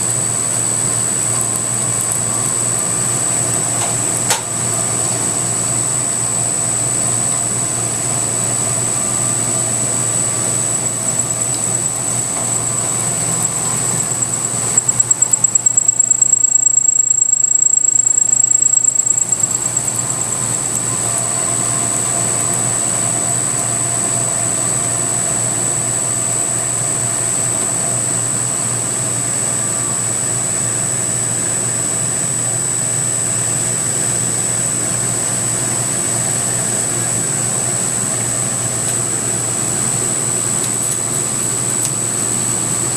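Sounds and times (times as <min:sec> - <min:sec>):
milling machine whine: 0:00.0 - 0:27.3.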